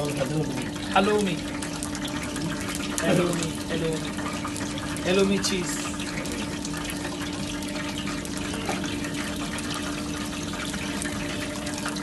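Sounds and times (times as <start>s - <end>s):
oil bubbling in deep fryer: 0.0s - 12.0s.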